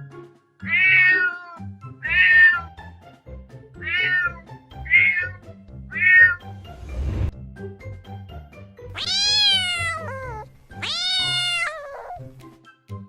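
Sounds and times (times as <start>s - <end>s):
background music: 0.0s - 13.0s
kitten meowing: 0.7s - 2.7s, 3.8s - 6.5s, 9.0s - 12.3s.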